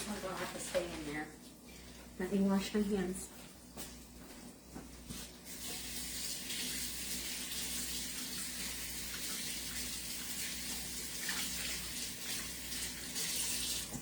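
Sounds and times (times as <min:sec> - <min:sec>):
faucet running water: 0:05.4 - 0:14.0.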